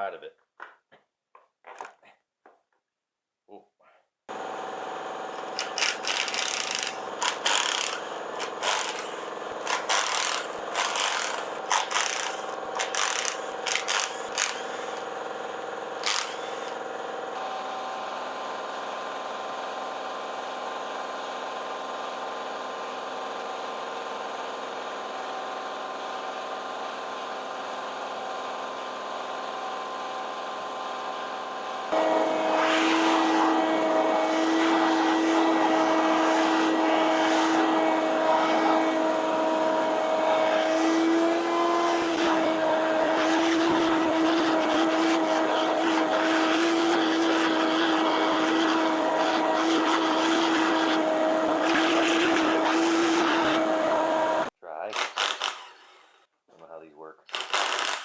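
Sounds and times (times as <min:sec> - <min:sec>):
machine hum: 0:31.9 - 0:55.6.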